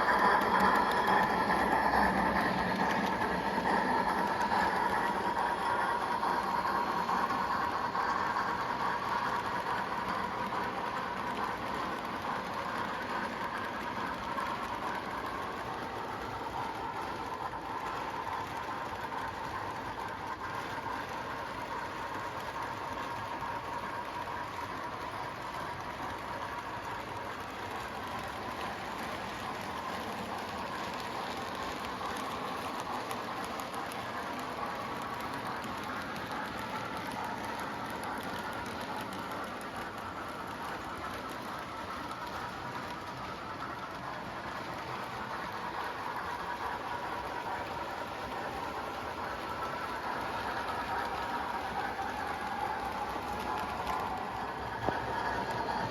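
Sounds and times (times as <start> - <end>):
model train motor whirring on rails: 0.0 - 55.9.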